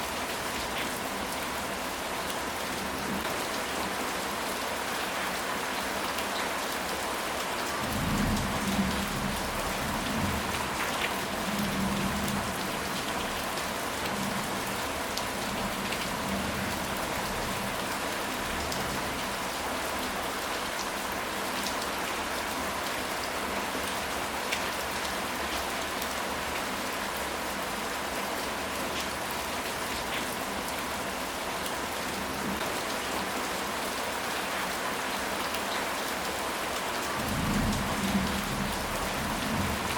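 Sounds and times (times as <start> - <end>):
steady rain falling: 0.0 - 39.9
low rumble of thunder: 37.2 - 39.9.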